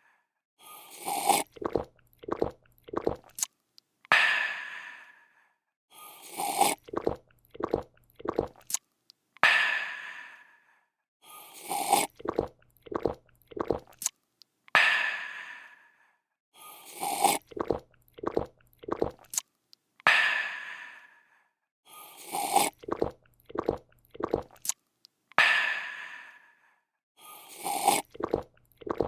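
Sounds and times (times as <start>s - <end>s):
person slurping and gulping: 0.7s - 3.5s, 6.1s - 8.8s, 11.5s - 14.1s, 16.8s - 19.4s, 22.0s - 24.8s, 27.4s - 29.0s.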